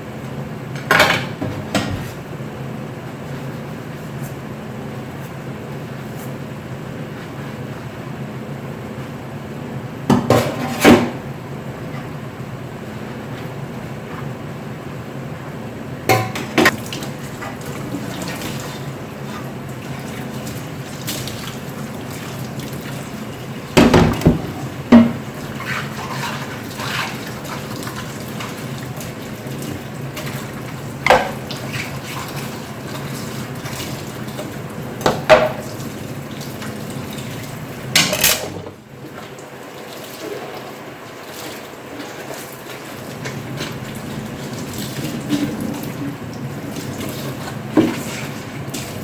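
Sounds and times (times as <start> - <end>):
dishes clinking and knocking: 16.1 - 16.8
running water: 38.8 - 49.0.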